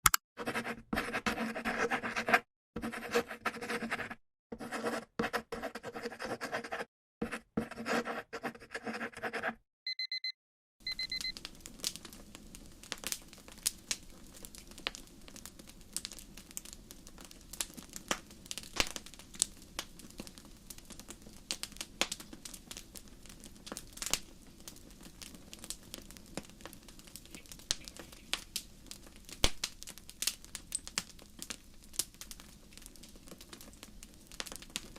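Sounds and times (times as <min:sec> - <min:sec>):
high electronic beeps: 0:09.9 - 0:11.3
fire crackling and popping: 0:10.9 - 0:34.9.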